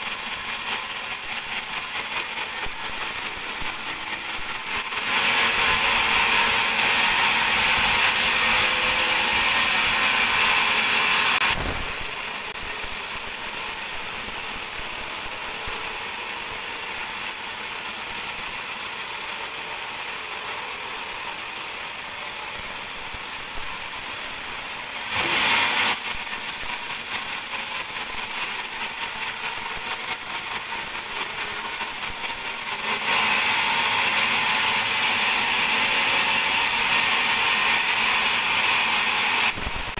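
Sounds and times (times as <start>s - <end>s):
band saw cutting log: 0.0s - 39.9s.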